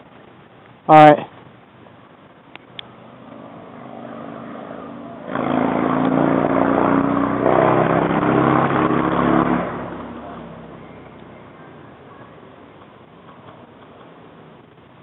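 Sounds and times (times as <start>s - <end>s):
vehicle engine passing by: 2.8s - 14.4s.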